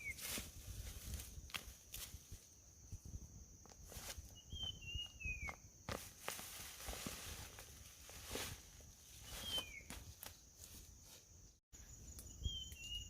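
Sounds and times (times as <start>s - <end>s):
footsteps outdoors: 0.0s - 11.6s
bird whistling: 4.4s - 5.6s, 9.3s - 9.9s, 12.4s - 13.0s
rustling crunches: 5.9s - 10.8s.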